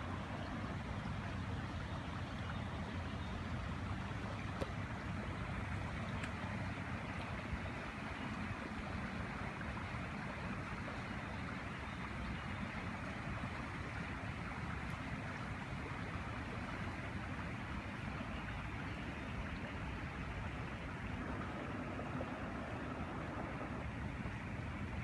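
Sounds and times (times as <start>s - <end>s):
floodwater rushing: 11.5s - 25.0s.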